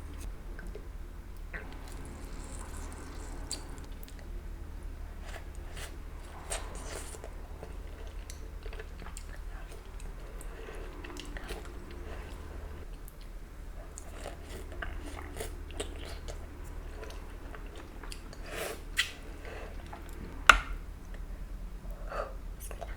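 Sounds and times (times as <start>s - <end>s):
steady low hum: 0.0s - 22.9s
wet chewing and biting: 1.4s - 4.3s.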